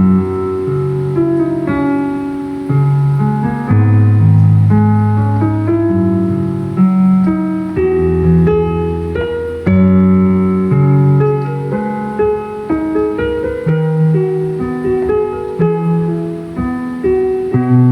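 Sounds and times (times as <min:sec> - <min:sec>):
slow piano melody: 0:00.0 - 0:17.9.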